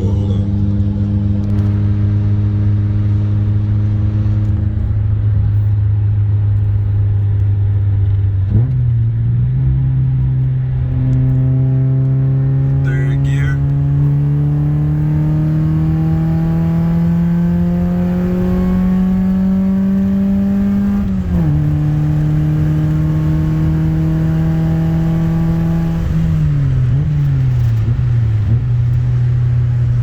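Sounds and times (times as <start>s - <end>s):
car engine revving through gears: 8.0s - 30.0s.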